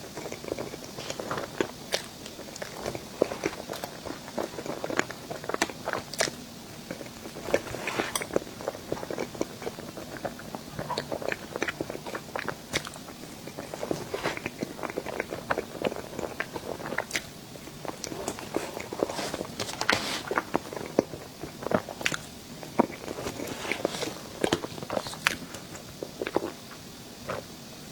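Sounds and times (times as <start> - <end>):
person chewing crunchy sweet: 0.0 - 27.5.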